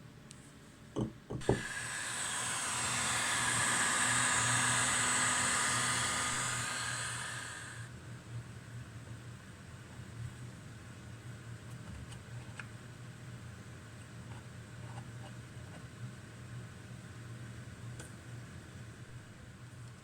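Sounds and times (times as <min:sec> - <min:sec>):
pressurised gas hissing: 0:01.4 - 0:07.9.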